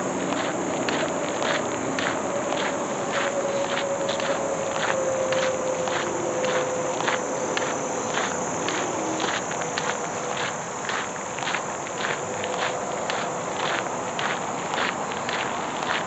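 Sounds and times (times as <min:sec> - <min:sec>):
footsteps on woodland ground: 0:00.0 - 0:16.0
insects chirring: 0:00.0 - 0:16.0.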